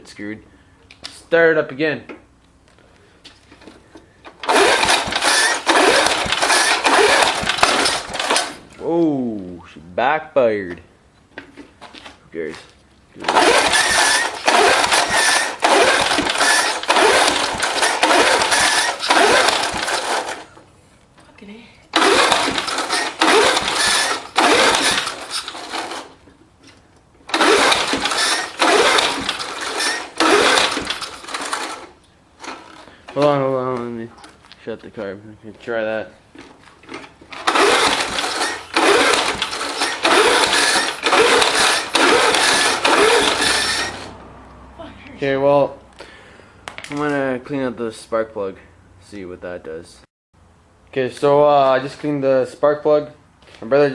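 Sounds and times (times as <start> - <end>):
mower engine pull-started: 3.6 - 8.8, 13.2 - 20.6, 21.9 - 26.3, 27.2 - 33.5, 36.4 - 44.2
engine running rough: 4.3 - 8.8, 13.2 - 20.6, 21.9 - 26.4, 27.2 - 33.3, 37.2 - 45.2.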